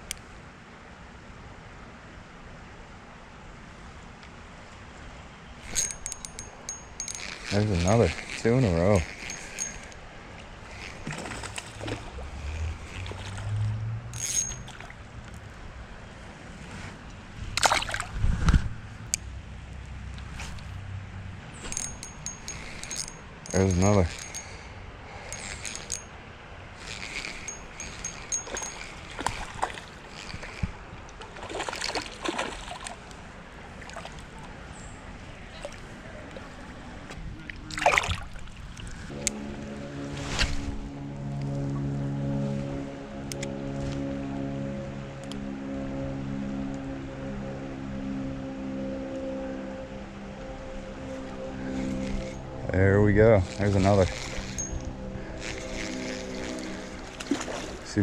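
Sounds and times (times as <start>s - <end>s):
water splashing and sloshing: 10.2s - 18.4s, 28.4s - 42.4s, 56.0s - 58.0s
water splashes: 17.6s - 18.2s, 31.2s - 34.7s, 37.4s - 38.9s, 56.9s - 58.0s.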